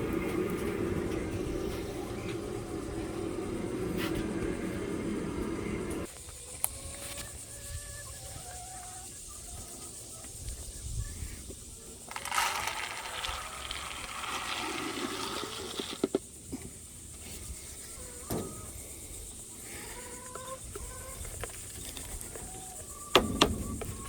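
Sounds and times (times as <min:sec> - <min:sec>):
grain feed poured into feeder: 0:12.1 - 0:16.2.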